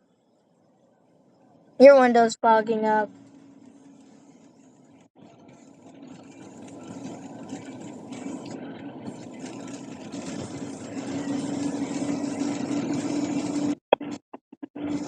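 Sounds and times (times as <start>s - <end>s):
car interior hum: 2.6s - 14.2s.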